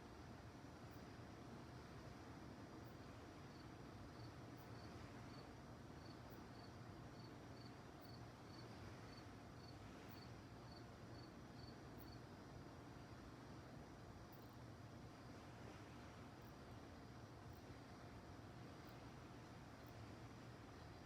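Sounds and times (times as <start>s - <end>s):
low background hiss: 0.0s - 21.0s
cricket chirping: 2.8s - 12.3s, 14.3s - 14.6s.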